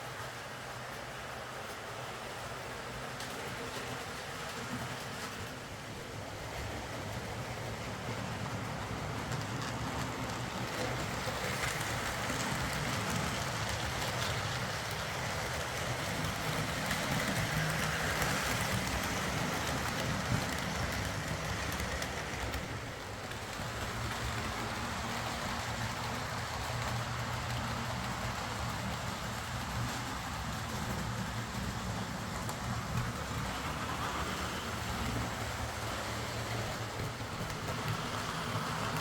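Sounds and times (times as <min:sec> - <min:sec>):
wheels rattling over track: 0:00.0 - 0:39.0.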